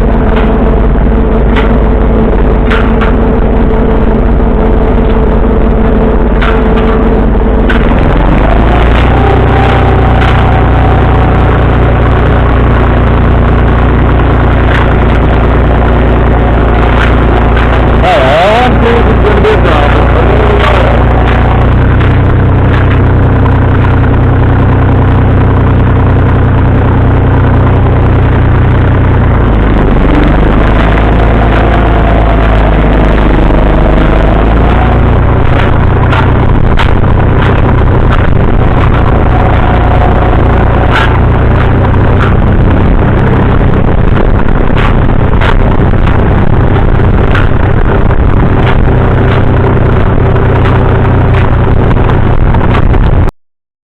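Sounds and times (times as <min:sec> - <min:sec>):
sharp clicks and rattles: 0:00.0 - 0:53.3
tractor engine running: 0:00.0 - 0:53.3.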